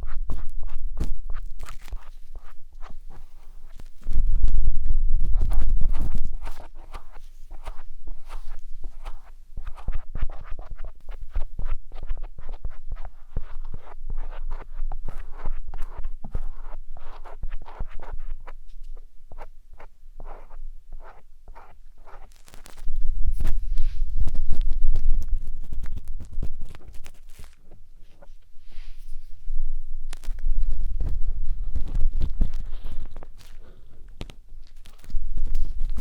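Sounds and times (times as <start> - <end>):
matchstick scratching in microphone ear: 0.0 - 29.4, 30.0 - 36.0.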